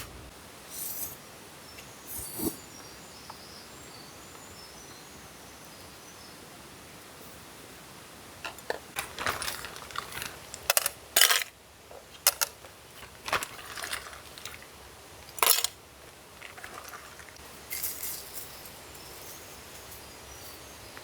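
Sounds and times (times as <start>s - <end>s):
camp cookware clinking: 8.4s - 11.6s, 12.2s - 20.4s.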